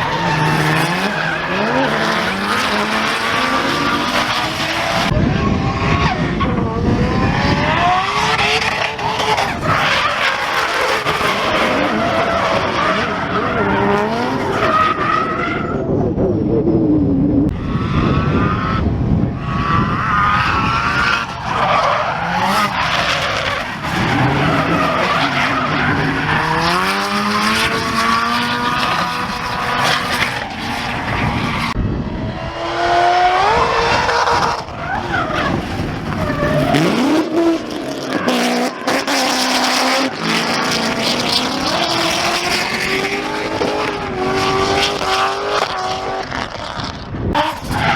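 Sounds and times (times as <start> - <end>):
tyres squealing and skidding: 0.0 - 16.0, 17.6 - 31.8, 33.3 - 46.0, 47.4 - 47.9
car engines revving: 0.0 - 47.9.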